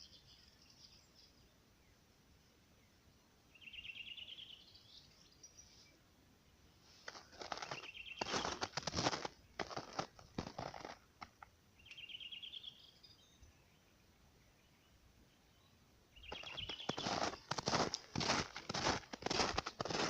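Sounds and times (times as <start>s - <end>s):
footsteps crunching on forest floor: 7.0s - 11.4s, 16.2s - 20.0s.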